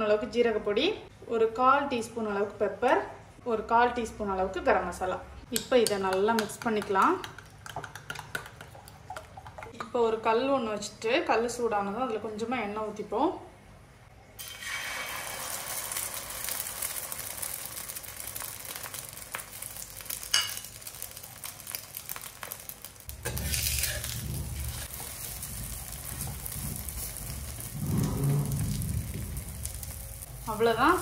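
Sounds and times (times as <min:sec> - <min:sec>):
oil sizzling on a griddle: 0:14.4 - 0:31.0
low rumble: 0:23.9 - 0:31.0.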